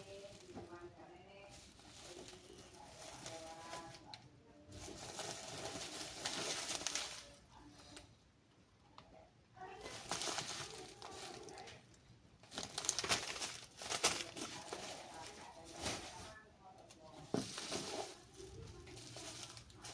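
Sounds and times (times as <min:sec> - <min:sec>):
packaging crinkling and tearing: 0:04.8 - 0:07.4, 0:09.8 - 0:11.8, 0:12.4 - 0:16.4.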